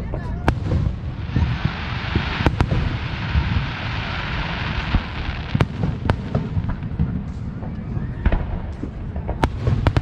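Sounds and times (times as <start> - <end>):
distant firework rumble: 0.0 - 10.0
firework bangs: 0.0 - 10.0
fireworks crackling: 0.0 - 10.0.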